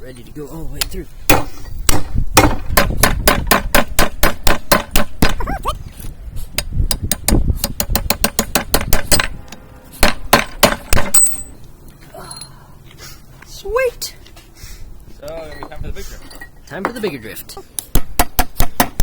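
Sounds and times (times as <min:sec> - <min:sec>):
hammer blows on metal: 0:06.4 - 0:11.5.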